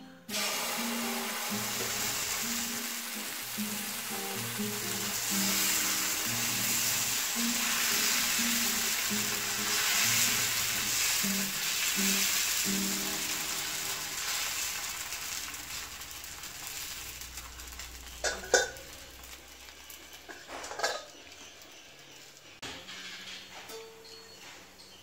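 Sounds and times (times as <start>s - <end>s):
batter sizzling on a hot griddle: 0.3s - 22.6s
metal lid clanking down: 18.2s - 18.8s, 20.3s - 21.2s.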